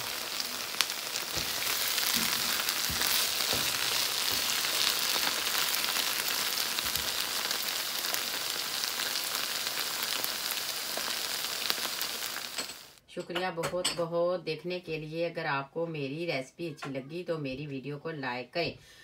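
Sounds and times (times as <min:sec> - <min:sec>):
greens sizzling in a pan: 0:00.0 - 0:13.0.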